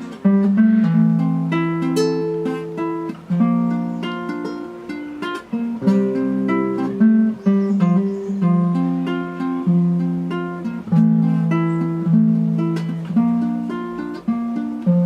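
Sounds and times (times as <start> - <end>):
acoustic guitar picking: 0.0 - 15.0.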